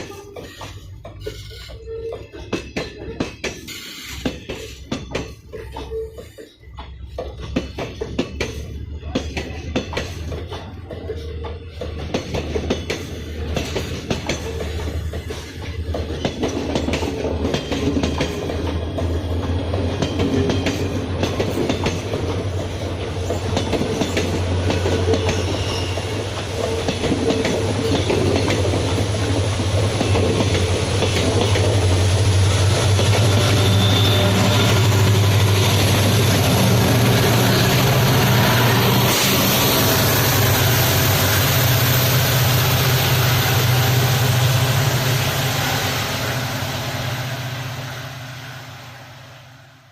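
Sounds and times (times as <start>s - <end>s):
train wheels clacking over rail joints: 0.0s - 45.1s
diesel locomotive drone with whine: 17.2s - 49.9s.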